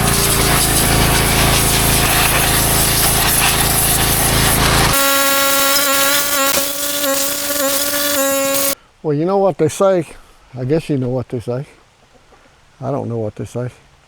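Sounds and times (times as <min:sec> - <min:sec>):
buzzy hum: 0:00.0 - 0:08.8
engine drone: 0:00.0 - 0:08.8
pressure washer hissing: 0:00.0 - 0:08.8.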